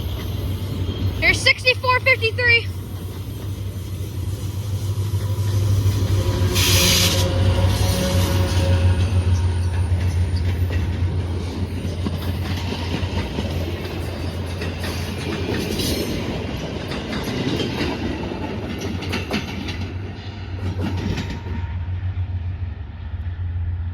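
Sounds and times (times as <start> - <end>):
train wheels clicking over rail joints: 2.8 - 21.7.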